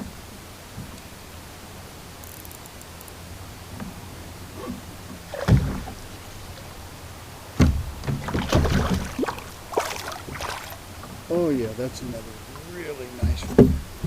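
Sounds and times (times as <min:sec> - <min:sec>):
thumps against plastic kayak hull: 0:07.6 - 0:10.6, 0:13.2 - 0:14.0.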